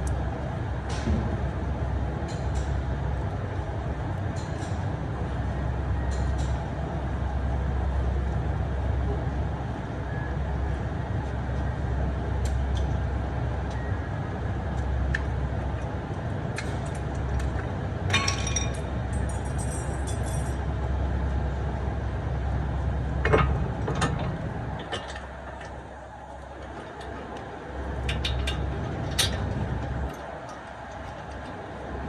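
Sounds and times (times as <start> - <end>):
metal tools clinking and knocking: 18.1 - 20.6.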